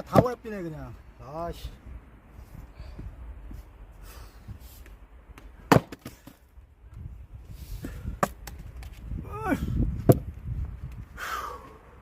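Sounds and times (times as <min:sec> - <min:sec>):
axe chopping log: 0:05.4 - 0:06.4.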